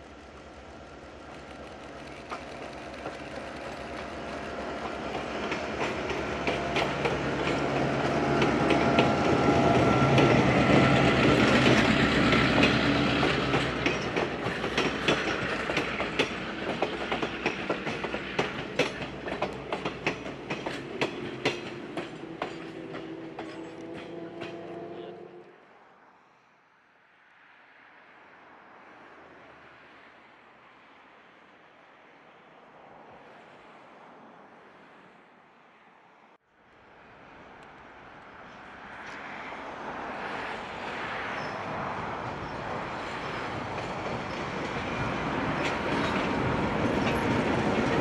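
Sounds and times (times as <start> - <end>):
train wheels clickety-clack: 0.0 - 25.0, 40.3 - 48.0
locomotive engine: 0.0 - 25.6, 41.4 - 48.0.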